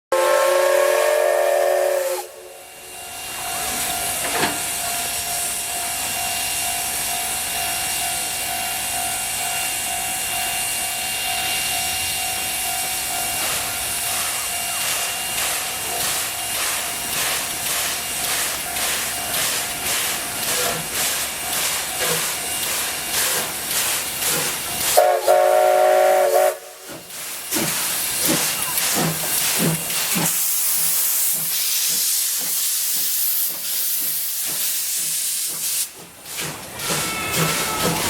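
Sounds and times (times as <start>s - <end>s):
steam locomotive whistle: 0.1s - 6.6s, 24.9s - 26.9s
loud hiss of steam: 0.1s - 38.0s.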